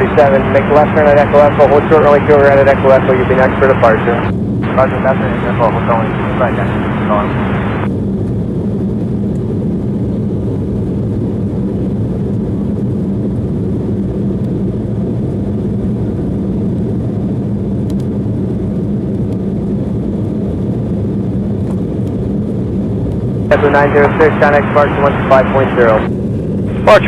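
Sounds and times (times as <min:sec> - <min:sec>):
jet engines muffled rumble: 0:00.0 - 0:27.0.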